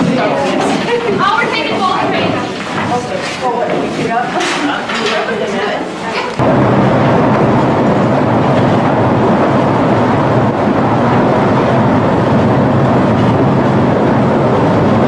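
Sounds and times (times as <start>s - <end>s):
train rumbling: 6.4s - 15.0s.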